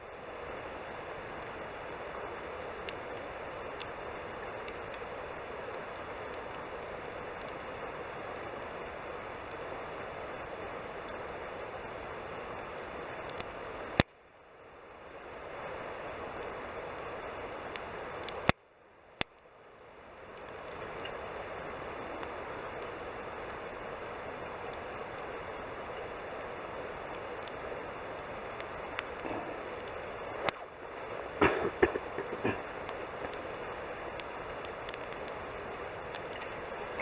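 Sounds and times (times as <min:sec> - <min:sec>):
campfire hissing and crackling: 0:00.0 - 0:37.0
loud sharp fire pops: 0:28.6 - 0:37.0.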